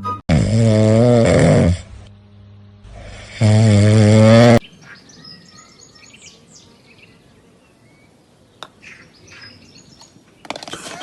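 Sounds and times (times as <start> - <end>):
faint bird chirps: 4.6 - 10.2.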